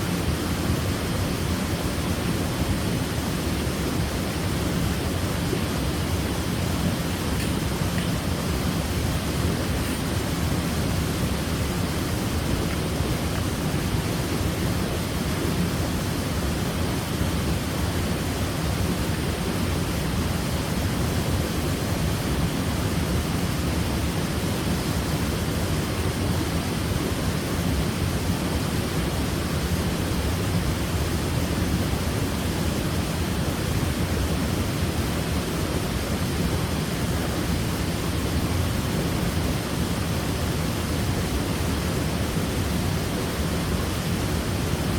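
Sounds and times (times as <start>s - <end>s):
waterfall crashing into a pool: 0.0s - 44.9s.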